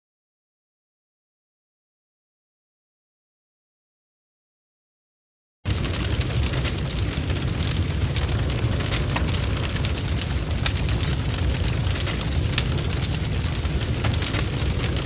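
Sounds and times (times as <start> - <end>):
wood fire crackling: 5.7 - 15.0.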